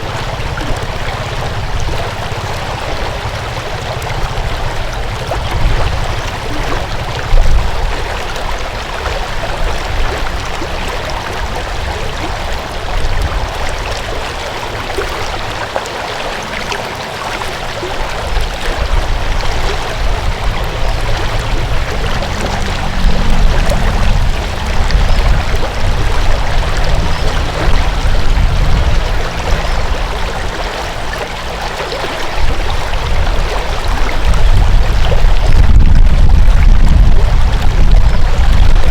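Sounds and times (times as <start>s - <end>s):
water flowing in a stream: 0.0s - 38.9s
low rumble: 16.4s - 38.9s.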